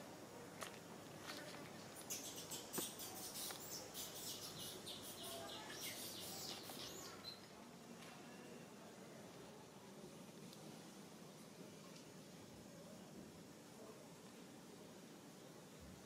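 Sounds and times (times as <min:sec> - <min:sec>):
faint outdoor background noise: 0:00.0 - 0:16.0
small birds twittering: 0:01.8 - 0:07.5.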